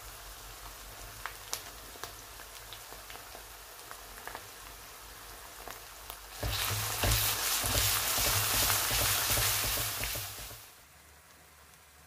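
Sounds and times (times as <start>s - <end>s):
paste sizzling in oil: 0.0s - 10.8s
spatula scraping a pan: 6.4s - 10.6s.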